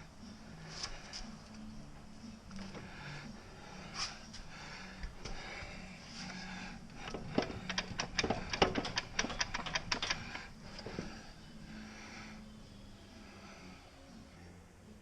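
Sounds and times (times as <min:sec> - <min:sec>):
steady low hum: 0:00.0 - 0:15.0
sharp clicks and light knocks: 0:07.0 - 0:11.0.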